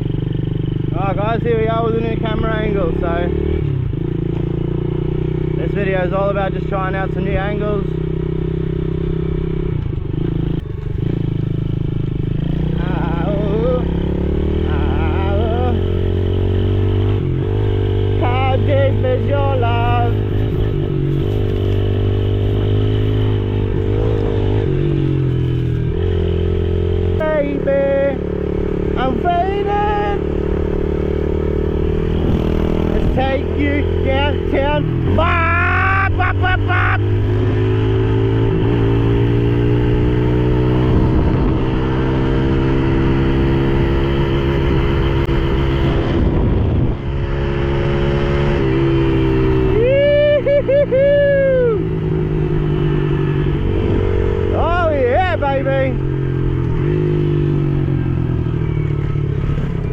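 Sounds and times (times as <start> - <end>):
motorbike engine running: 0.0 - 59.9.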